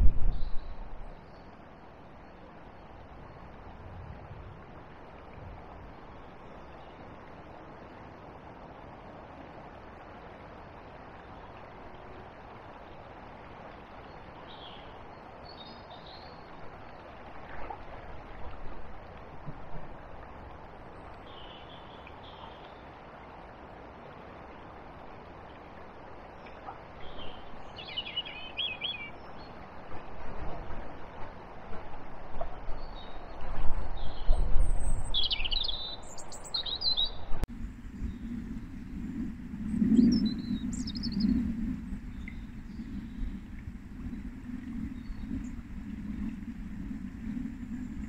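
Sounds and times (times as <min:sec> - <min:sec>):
flowing water: 0:00.0 - 0:48.0
wind: 0:00.0 - 0:48.0
small birds chirping: 0:34.1 - 0:45.9.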